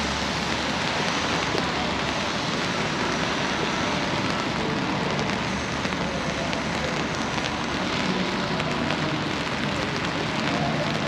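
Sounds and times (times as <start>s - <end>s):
rain falling on pavement: 0.0s - 11.0s.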